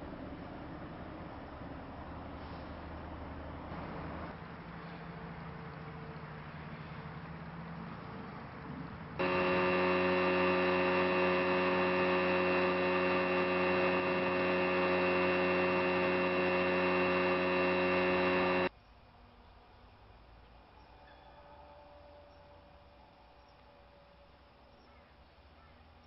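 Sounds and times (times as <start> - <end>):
loud steady hum: 9.2 - 18.7.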